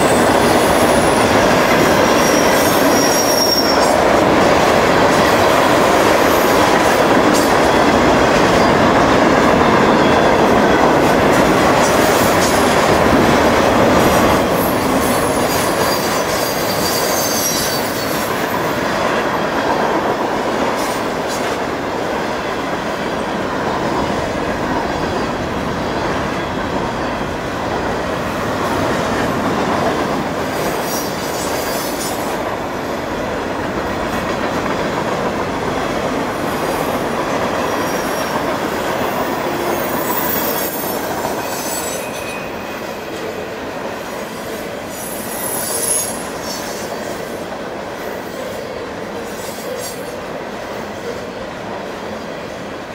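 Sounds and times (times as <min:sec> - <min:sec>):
high wheel squeals: 0:00.0 - 0:04.0, 0:14.5 - 0:18.3, 0:39.7 - 0:43.1, 0:44.9 - 0:47.0
train wheels rumbling on rail: 0:00.0 - 0:52.9.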